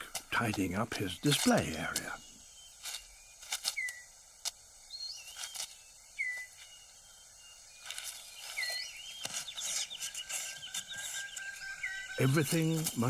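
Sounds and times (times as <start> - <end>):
dry leaves and twigs crackling: 0.0 - 13.0
short whistled bird call: 3.7 - 4.1, 6.2 - 6.8, 7.9 - 12.9.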